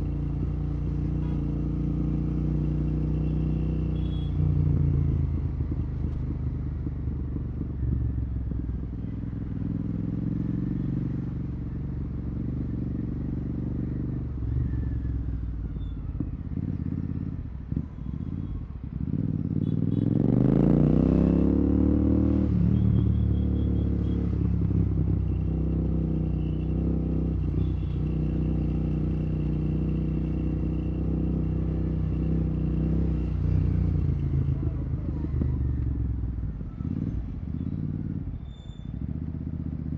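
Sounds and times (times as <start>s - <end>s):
loud motorcycle engine: 18.9s - 38.3s.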